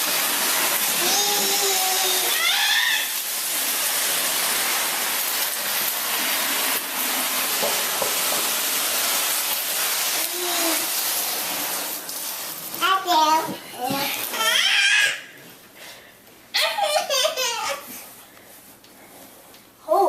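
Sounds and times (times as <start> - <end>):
child squealing: 1.0 - 3.2, 14.3 - 15.4.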